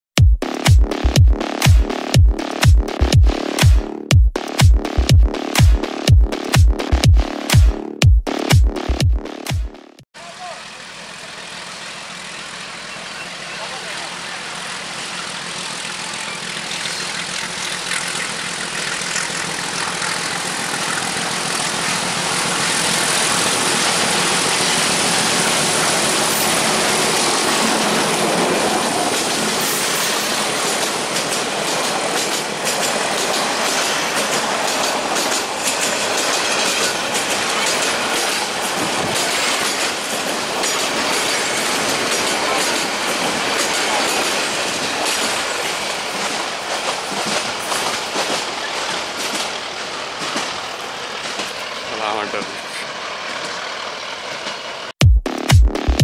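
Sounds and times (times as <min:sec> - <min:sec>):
diesel locomotive engine: 0:10.2 - 0:54.9
wheels clacking over rail joints: 0:11.3 - 0:54.9.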